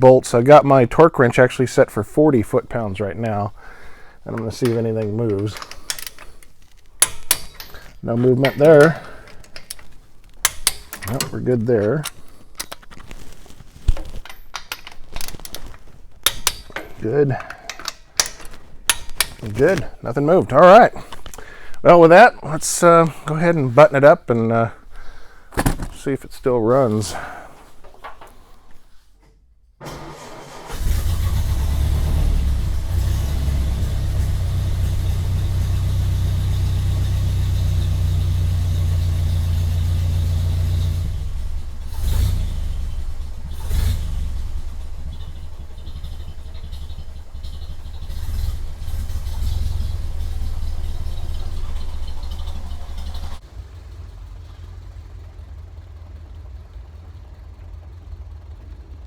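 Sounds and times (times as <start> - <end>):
car engine running: 2.0 - 14.2, 29.9 - 59.0
sharp engine knocks: 43.4 - 53.4.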